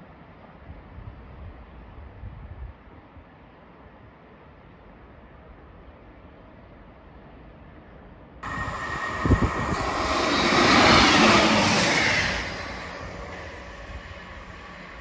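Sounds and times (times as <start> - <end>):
diesel train passing at speed: 8.4 - 15.0.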